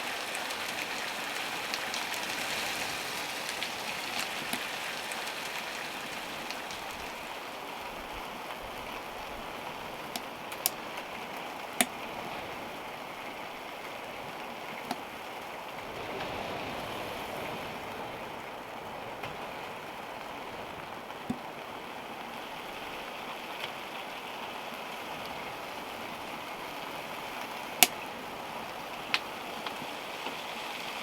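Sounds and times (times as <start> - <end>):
storm rushing hiss: 15.1 - 21.2.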